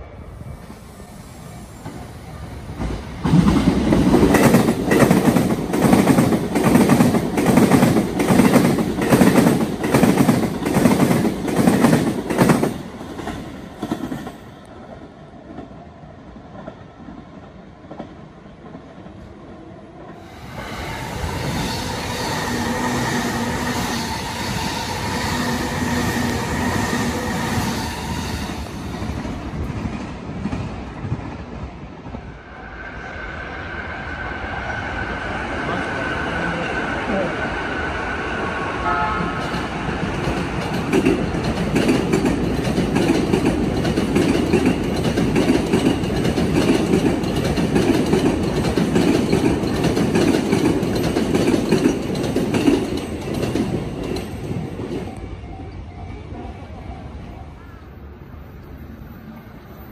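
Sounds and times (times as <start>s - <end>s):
electric trains passing: 0.0s - 59.9s
train humming: 0.0s - 59.9s
wheels clacking over rail joints: 39.4s - 55.1s.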